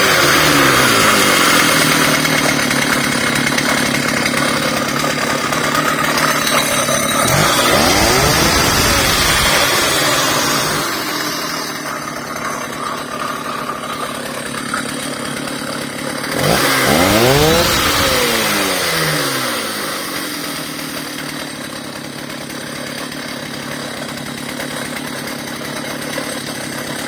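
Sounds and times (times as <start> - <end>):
chainsaw engine revving: 0.0 - 27.0.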